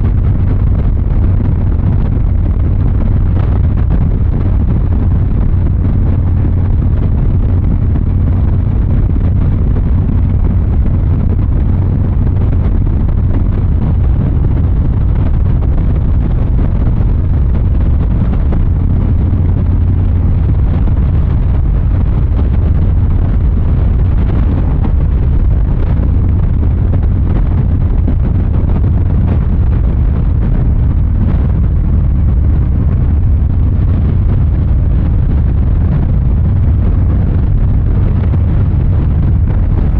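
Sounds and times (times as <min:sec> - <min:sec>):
motorcycle exhaust running: 0:00.0 - 0:39.9
wind noise on microphone: 0:00.0 - 0:39.9.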